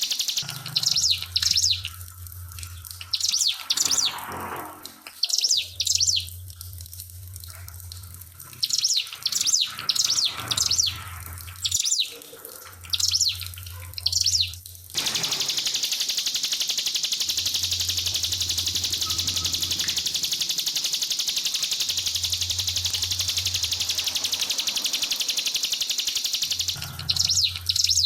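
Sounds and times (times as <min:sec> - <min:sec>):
fast-pulsing high hiss: 0:00.0 - 0:00.5, 0:15.0 - 0:27.5
bird singing rapid chirps: 0:00.0 - 0:02.0, 0:02.9 - 0:04.3, 0:05.2 - 0:06.4, 0:08.6 - 0:12.2, 0:12.9 - 0:28.0
low steady hum: 0:00.4 - 0:03.2, 0:05.8 - 0:08.6, 0:17.2 - 0:28.0.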